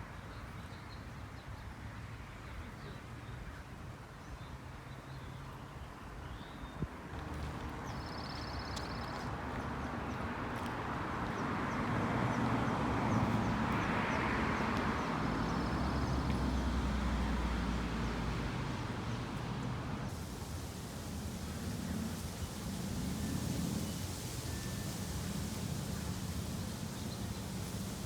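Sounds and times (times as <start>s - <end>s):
car passing by: 7.2s - 28.0s
small birds chirping: 12.7s - 28.0s.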